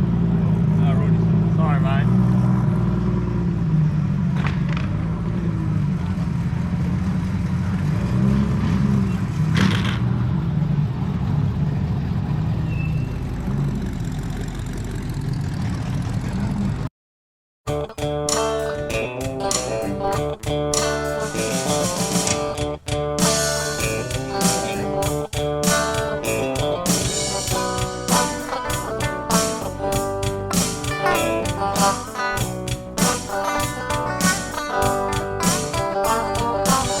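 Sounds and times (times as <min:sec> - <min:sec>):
car engine running: 0:00.0 - 0:16.9, 0:18.0 - 0:37.0
music: 0:17.7 - 0:37.0.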